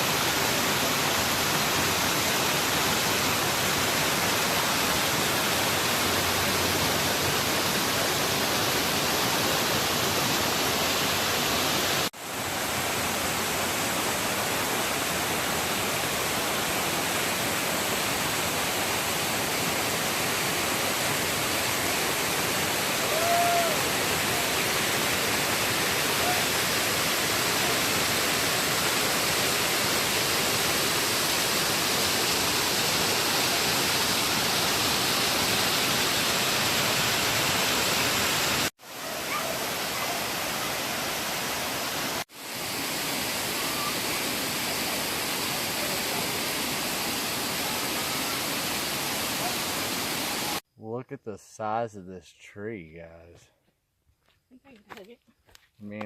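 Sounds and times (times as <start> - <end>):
waterfall rushing and splashing: 0.0 - 50.6.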